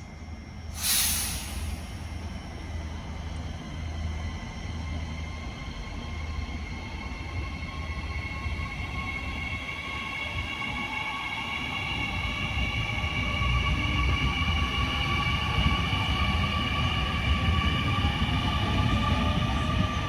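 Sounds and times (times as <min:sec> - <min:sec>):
train rumbling: 0:00.8 - 0:09.0.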